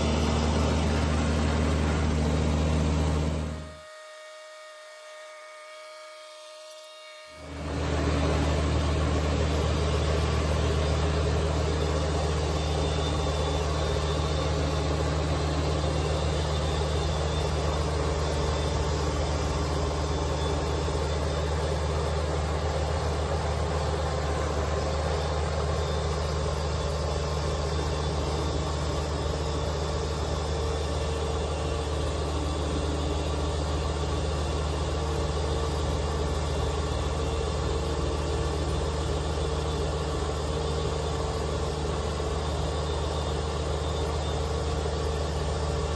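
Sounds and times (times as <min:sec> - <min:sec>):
tractor diesel engine running: 0:00.0 - 0:03.7, 0:07.5 - 0:45.9.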